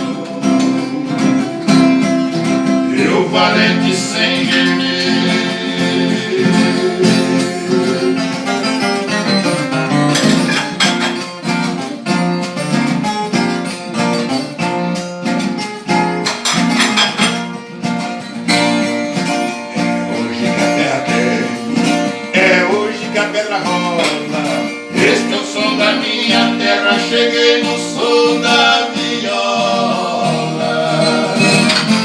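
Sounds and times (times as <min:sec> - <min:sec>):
plucked viola melody: 0:00.0 - 0:10.6
strummed acoustic guitar: 0:00.0 - 0:32.0.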